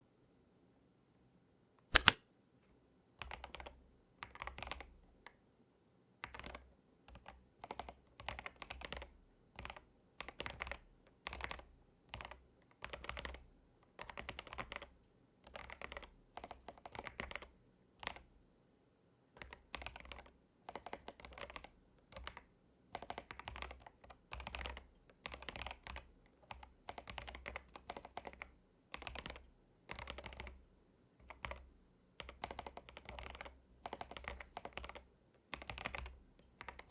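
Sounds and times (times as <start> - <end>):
mechanical keyboard typing: 2.0 - 2.2, 6.2 - 13.4, 14.0 - 18.2, 19.4 - 30.6, 32.2 - 36.9.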